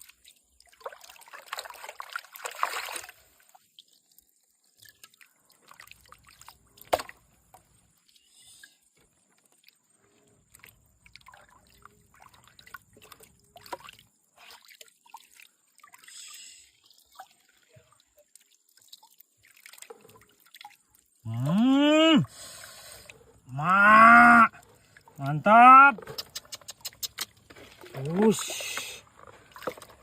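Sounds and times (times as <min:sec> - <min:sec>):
faint drips: 0:07.5 - 0:23.7, 0:24.4 - 0:30.0
drawn-out voiced calls: 0:25.2 - 0:27.4.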